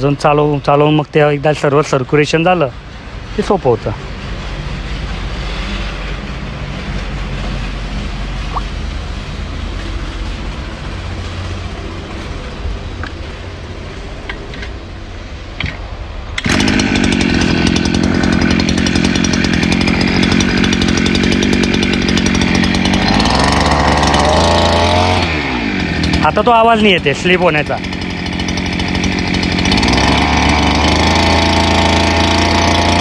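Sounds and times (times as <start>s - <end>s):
brush cutter engine revving: 15.6s - 33.0s.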